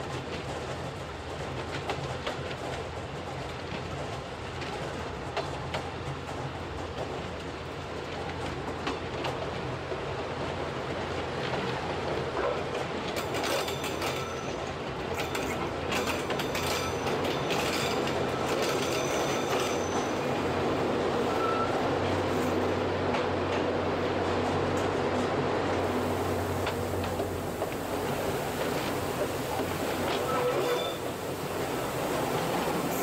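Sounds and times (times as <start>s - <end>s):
wheels squealing: 15.2s - 20.3s, 21.2s - 21.9s, 28.6s - 31.4s
train motor hum: 22.0s - 33.0s.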